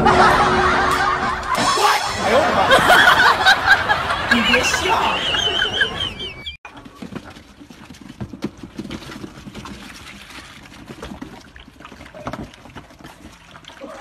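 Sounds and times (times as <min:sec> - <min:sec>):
puppies lapping milk: 0:07.3 - 0:14.0.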